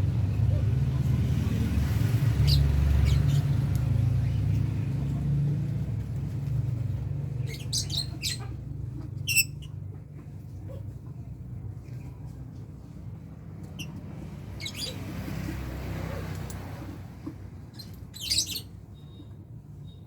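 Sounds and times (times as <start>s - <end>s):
lovebirds chirping: 7.4s - 9.8s, 17.7s - 20.0s.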